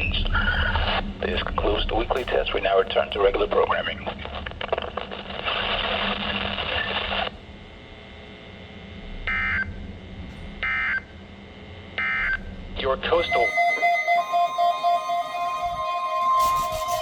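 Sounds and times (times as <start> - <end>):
radio hiss: 0.0 - 7.4
warbling digital data tones: 13.1 - 17.0.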